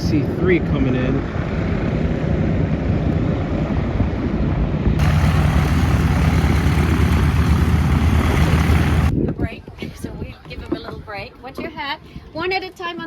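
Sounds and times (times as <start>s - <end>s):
propeller engines droning: 5.0s - 9.1s.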